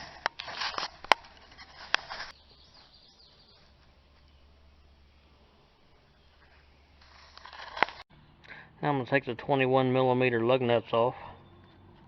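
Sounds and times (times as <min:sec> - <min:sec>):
brief rustle: 0:00.0 - 0:04.4, 0:06.4 - 0:08.0
faint outdoor background: 0:00.0 - 0:12.0.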